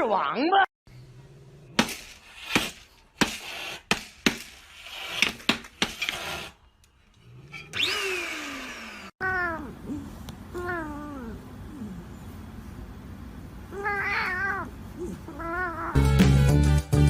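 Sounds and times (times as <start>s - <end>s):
cat yowling: 9.2s - 12.0s, 13.7s - 16.0s.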